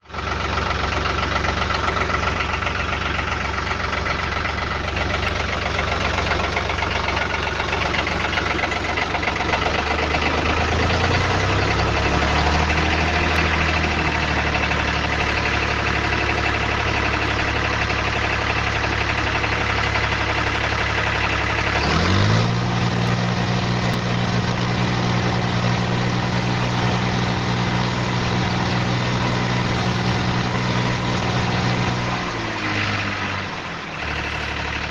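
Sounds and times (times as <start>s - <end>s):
tractor engine running: 0.0s - 34.9s.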